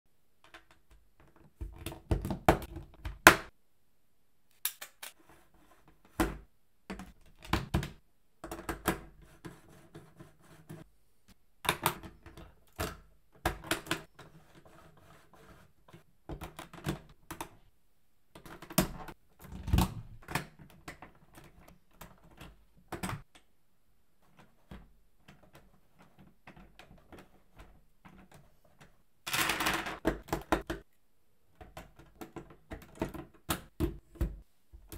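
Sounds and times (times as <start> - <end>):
plastic parts clicking and rattling: 0.4 - 3.5, 11.6 - 15.0, 15.8 - 17.6, 24.2 - 30.9, 31.5 - 34.9.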